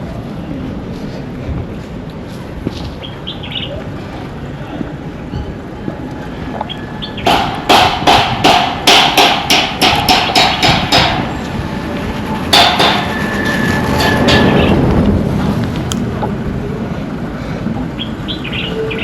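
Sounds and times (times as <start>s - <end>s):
steady noise: 3.9s - 18.3s
hammer striking metal: 7.2s - 11.3s, 12.5s - 13.2s.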